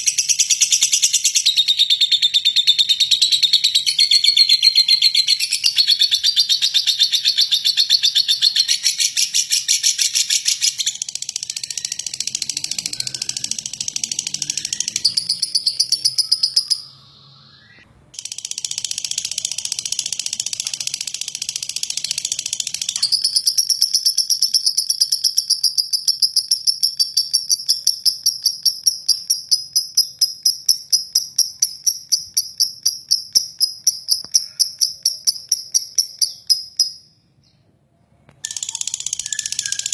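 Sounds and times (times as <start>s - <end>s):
lovebird rattling trill: 3.9s - 16.8s, 18.2s - 37.0s, 38.4s - 39.9s.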